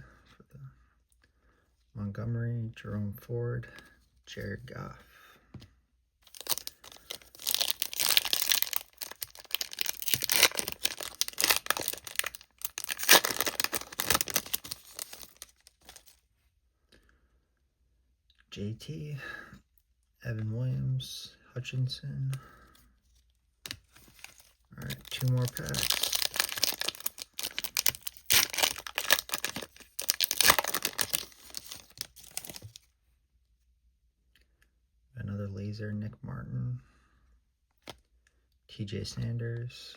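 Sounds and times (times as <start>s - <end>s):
foil wrapper tearing and crinkling: 6.3s - 16.2s, 24.0s - 32.8s.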